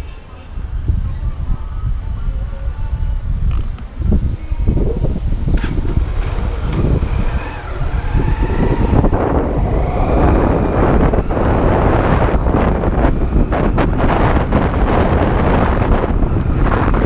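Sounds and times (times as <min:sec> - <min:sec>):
wind buffeting microphone: 0:00.0 - 0:17.0
motorcycle engine rumbling: 0:03.2 - 0:17.0.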